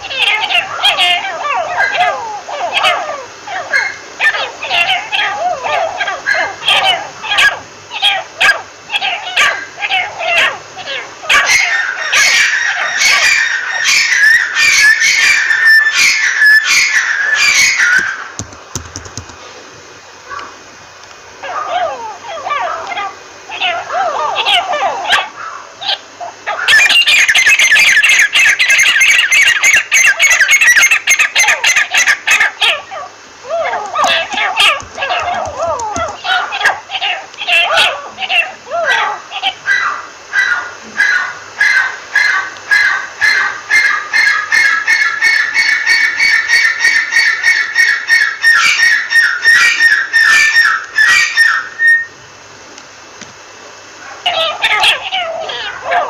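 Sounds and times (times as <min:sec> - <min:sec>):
lapwing shrill chattering calls: 0:08.9 - 0:18.3, 0:21.5 - 0:52.1.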